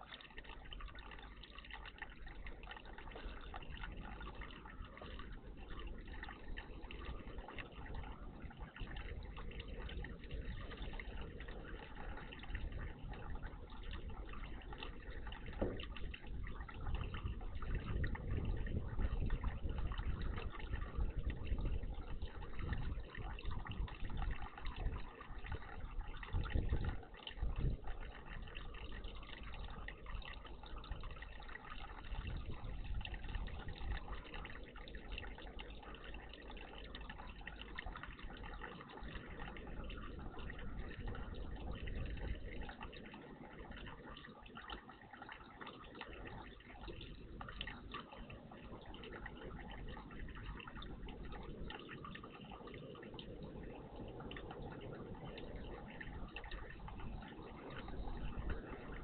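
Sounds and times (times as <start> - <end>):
water trickling and dripping: 0.0 - 59.0.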